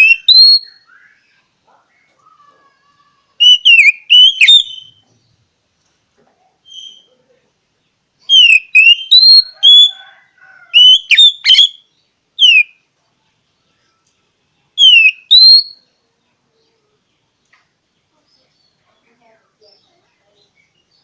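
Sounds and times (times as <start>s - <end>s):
bird singing whistled notes: 0.0s - 2.1s, 3.4s - 5.1s, 6.6s - 7.1s, 8.2s - 12.8s, 14.8s - 16.0s.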